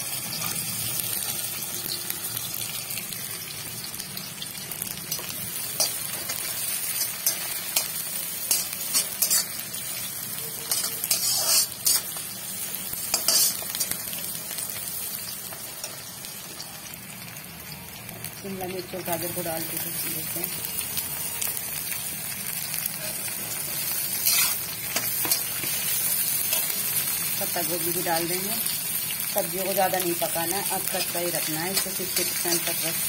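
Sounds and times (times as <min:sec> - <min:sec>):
onions sizzling in hot oil: 0:00.0 - 0:33.0
metal spatula scraping a pan: 0:05.1 - 0:12.2, 0:13.0 - 0:14.0, 0:23.0 - 0:27.1.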